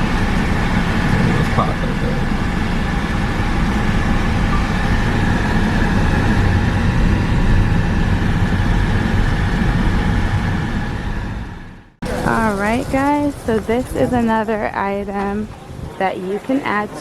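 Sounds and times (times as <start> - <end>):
road noise: 0.0 - 17.0
vehicle engine rumble: 0.0 - 17.0.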